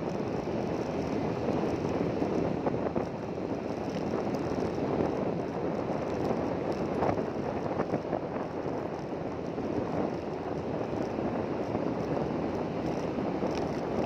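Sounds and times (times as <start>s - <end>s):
moving vehicle rumbling: 0.0s - 14.0s
wind on microphone: 0.0s - 14.0s.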